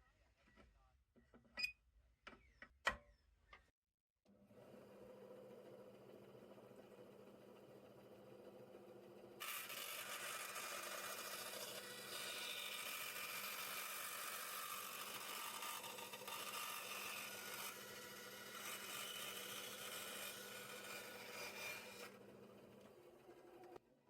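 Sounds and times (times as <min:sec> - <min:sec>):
power saw cutting wood: 0:09.4 - 0:23.8.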